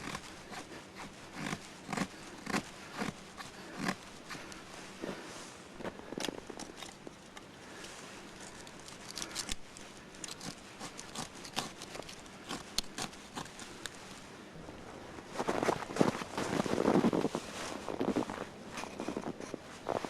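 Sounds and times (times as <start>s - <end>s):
dry deadwood snapping: 8.5s - 14.0s.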